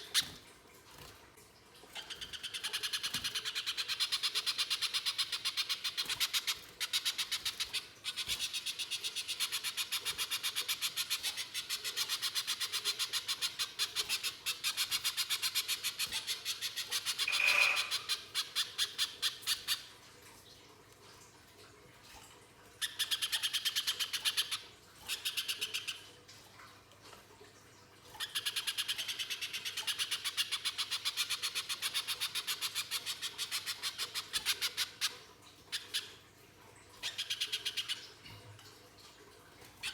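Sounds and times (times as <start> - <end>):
bird chipping calls: 17.1 - 18.3.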